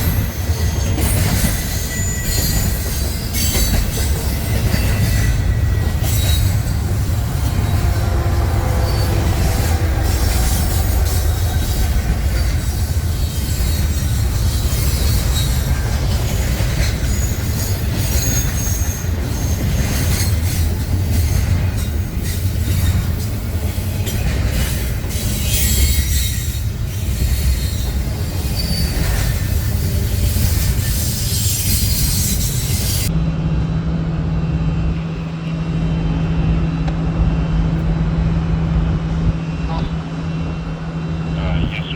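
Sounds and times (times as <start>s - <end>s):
train wheels squealing: 0.0s - 33.1s
wheels clacking over rail joints: 0.0s - 33.1s
freight train cars rumbling: 0.0s - 41.9s.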